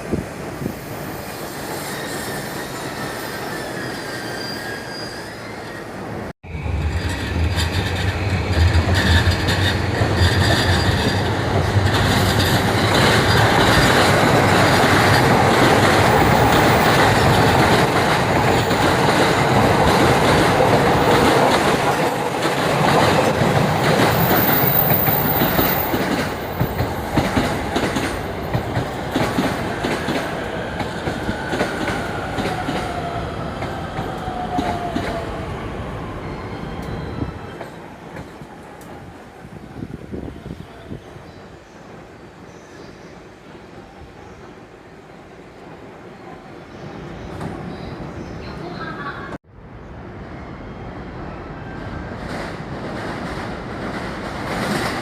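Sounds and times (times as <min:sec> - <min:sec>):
train wheels rumbling on rails: 0:06.5 - 0:41.0, 0:51.9 - 0:55.0.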